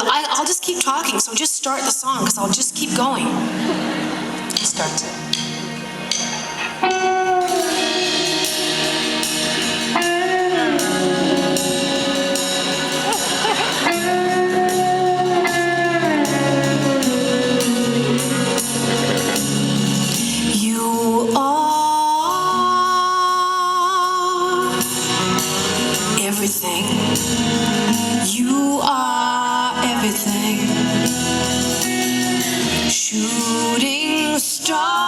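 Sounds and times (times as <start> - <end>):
live band playing slow song: 0.0 - 35.0
woman singing: 7.2 - 19.0, 20.2 - 25.2, 26.0 - 27.3, 28.0 - 35.0.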